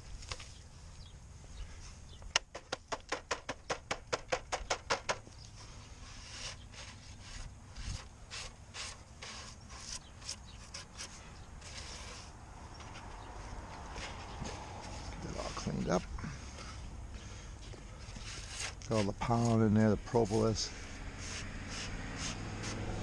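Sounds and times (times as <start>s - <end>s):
tool scraping beehive screen: 5.6s - 13.1s, 13.9s - 16.1s, 18.0s - 23.0s.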